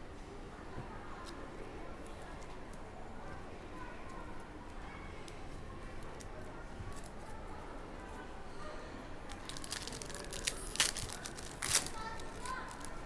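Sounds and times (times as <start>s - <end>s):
faint voices murmuring: 0.0s - 13.0s
foil wrapper crinkling and tearing: 9.3s - 13.0s.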